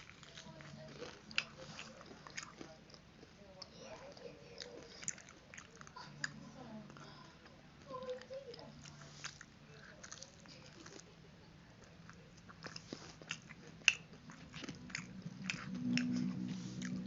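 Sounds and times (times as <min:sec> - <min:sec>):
fried chicken chewing crunches: 0:00.0 - 0:07.2, 0:08.0 - 0:11.2, 0:11.8 - 0:17.0
wet mouth clicks: 0:12.4 - 0:17.0
low hum: 0:13.5 - 0:17.0.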